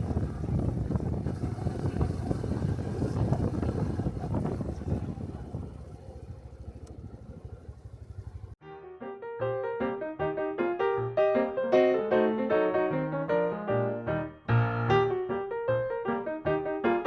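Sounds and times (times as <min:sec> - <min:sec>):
motorcycle engine running: 0:00.0 - 0:08.6
wind on microphone: 0:00.0 - 0:08.6.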